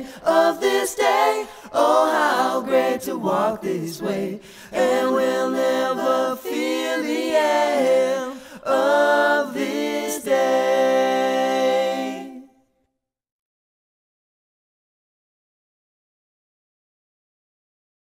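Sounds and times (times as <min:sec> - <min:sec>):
voices singing in harmony: 0:00.0 - 0:12.6.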